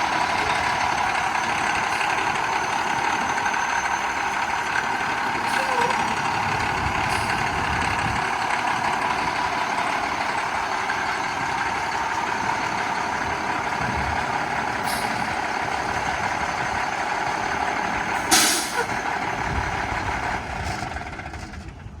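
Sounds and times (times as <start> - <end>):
heavy truck engine running: 0.0 - 22.0.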